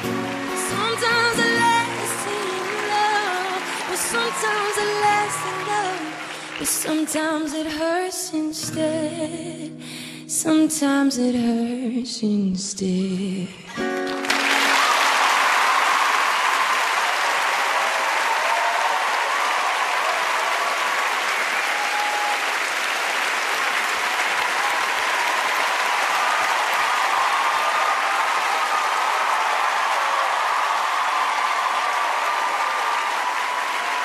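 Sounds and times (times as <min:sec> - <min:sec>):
faint cheering voices: 0:00.0 - 0:06.6, 0:14.4 - 0:34.0
audience applauding: 0:00.0 - 0:07.7, 0:13.7 - 0:34.0.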